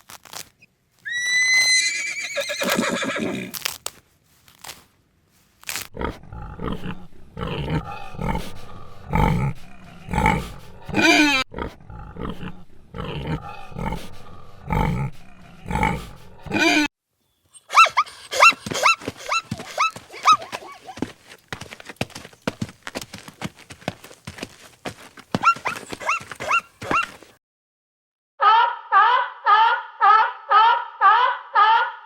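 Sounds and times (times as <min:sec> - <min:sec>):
animal giving harsh calls: 0:01.0 - 0:03.7, 0:06.0 - 0:16.9, 0:17.6 - 0:21.0, 0:25.4 - 0:27.2.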